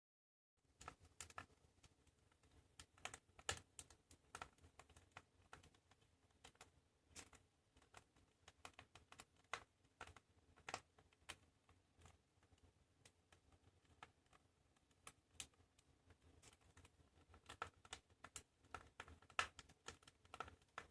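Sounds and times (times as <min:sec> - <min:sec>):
wood fire crackling: 0:00.6 - 0:20.9.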